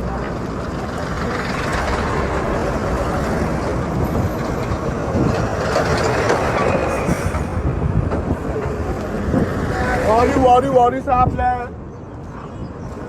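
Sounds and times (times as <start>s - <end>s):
road vehicle engine and tyres: 0.0s - 11.0s.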